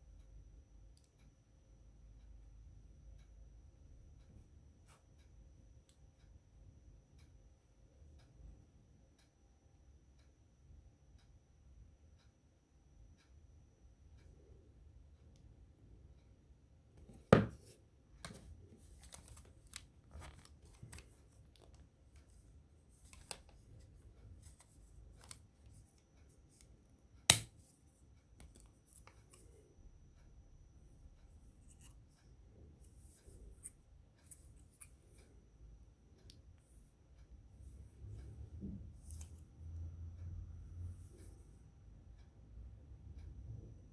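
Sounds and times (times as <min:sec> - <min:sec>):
packaging clicks and rustles: 0:18.3 - 0:22.3.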